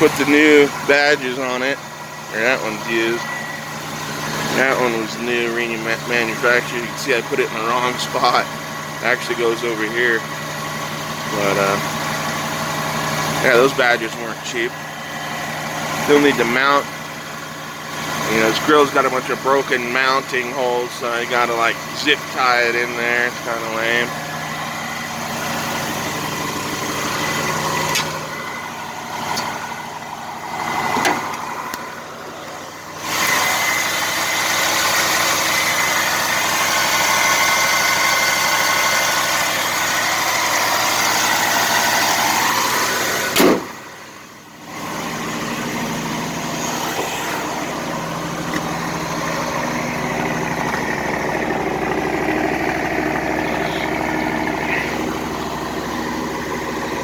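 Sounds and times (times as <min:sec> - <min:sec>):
engine idling: 0:00.0 - 0:57.0
sharp knock: 0:43.4 - 0:43.8.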